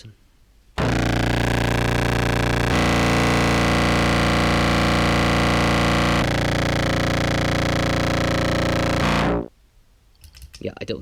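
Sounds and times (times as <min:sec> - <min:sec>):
distorted low clarinet tone: 0:00.8 - 0:09.5.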